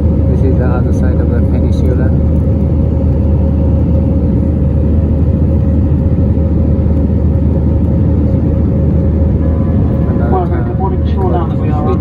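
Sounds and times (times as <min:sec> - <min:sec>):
jet engines and airflow rumble: 0:00.0 - 0:12.0.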